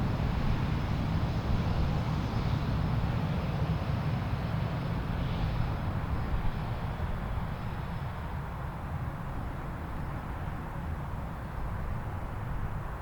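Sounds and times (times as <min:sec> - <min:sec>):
jet airliner rumble: 0:00.0 - 0:08.4.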